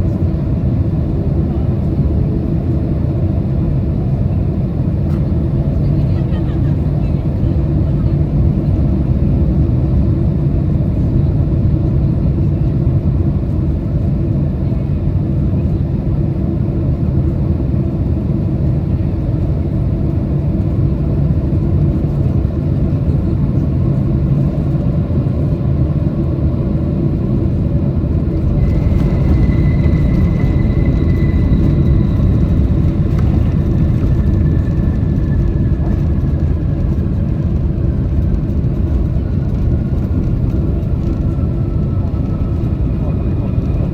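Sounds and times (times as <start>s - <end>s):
aircraft engines rumbling: 0.0s - 43.9s
high whine sliding lower: 28.2s - 38.3s.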